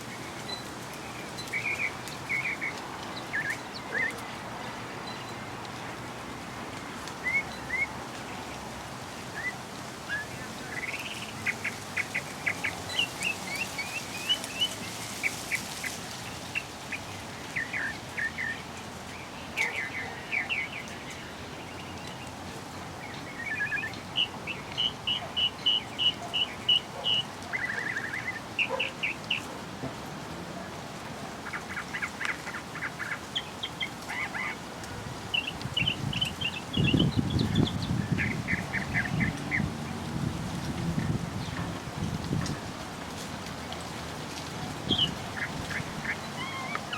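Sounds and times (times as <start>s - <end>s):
steady background hiss: 0.0s - 46.9s
birds chirping and trilling: 0.4s - 5.4s, 23.0s - 29.5s, 31.4s - 34.6s, 35.3s - 39.7s, 44.8s - 46.9s.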